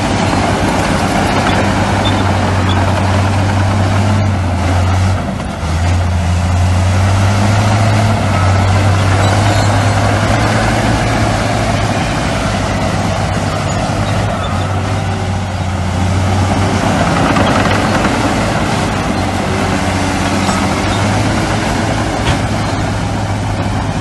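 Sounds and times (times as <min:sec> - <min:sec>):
heavy diesel engine humming: 0:00.0 - 0:24.0.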